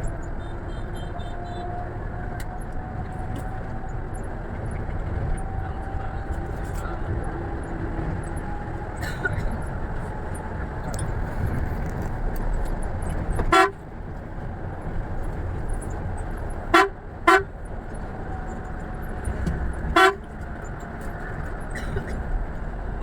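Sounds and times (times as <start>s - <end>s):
bus engine and road noise: 0.0s - 23.0s
vehicle horn honking: 0.4s - 1.8s, 13.5s - 13.8s, 16.7s - 17.6s, 19.9s - 20.3s.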